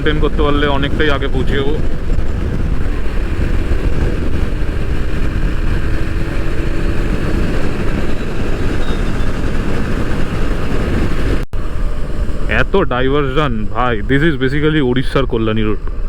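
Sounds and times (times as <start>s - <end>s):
motorcycle engine cruising: 0.0s - 12.7s
wind rumble on microphone: 0.0s - 16.0s.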